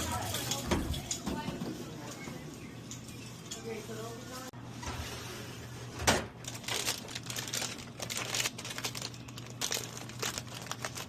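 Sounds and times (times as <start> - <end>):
plastic packets crinkling: 6.4 - 11.0.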